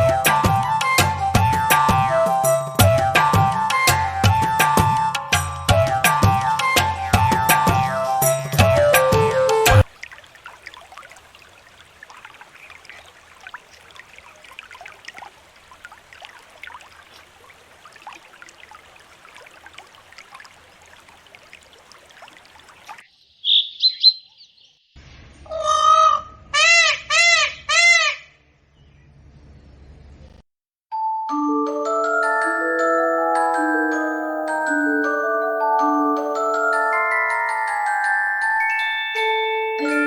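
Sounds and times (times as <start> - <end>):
whistled call: 0.0 - 9.8
birds chirping faintly: 16.2 - 25.0
loud bird calls: 23.2 - 24.8.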